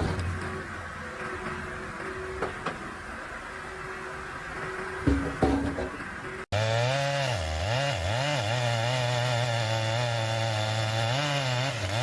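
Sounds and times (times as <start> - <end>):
chainsaw engine at high revs: 6.5 - 12.0.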